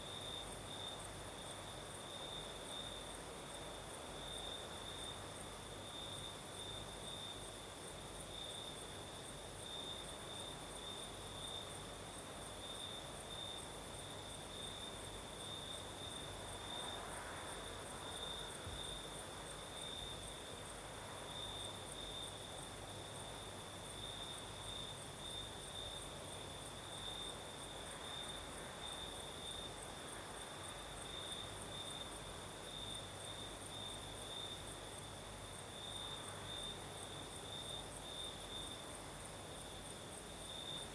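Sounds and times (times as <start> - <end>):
crickets chirping: 0.0 - 40.9
night breeze: 0.0 - 40.9.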